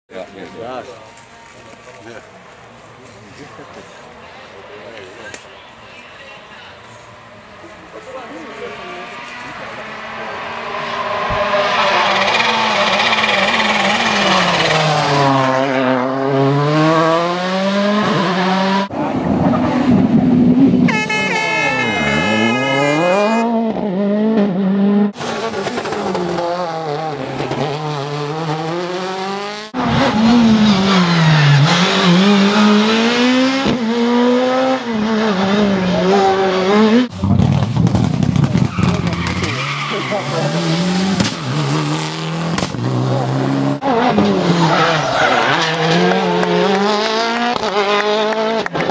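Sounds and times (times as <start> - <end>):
rally car engines passing: 0.2 - 48.9
tyre squeal: 20.9 - 23.4.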